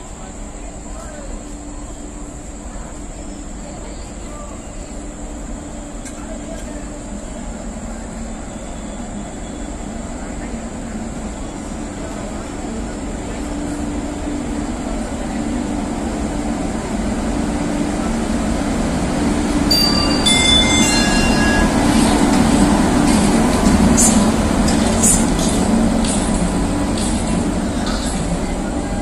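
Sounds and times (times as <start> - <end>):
train rumble and hum: 0.0 - 29.0
high-pitched train squeals: 2.8 - 10.6, 19.7 - 25.8.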